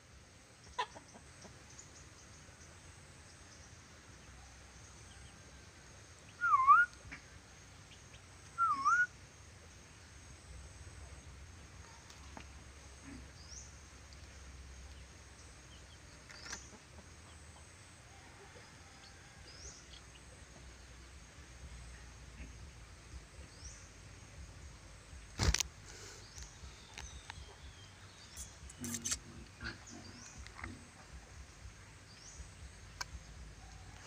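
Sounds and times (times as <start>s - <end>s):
high bird chirps: 26.4s - 29.2s.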